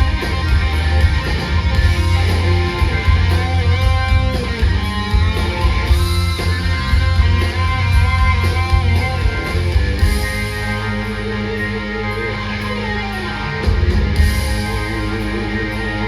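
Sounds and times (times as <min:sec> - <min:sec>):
electric guitar melody: 0:00.0 - 0:16.0
rock band playing live: 0:00.0 - 0:16.0.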